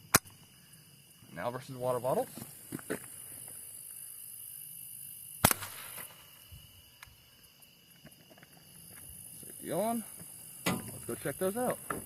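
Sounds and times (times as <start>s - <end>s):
high insect buzz: 0.0s - 12.0s
rifle shot crack: 5.4s - 6.2s.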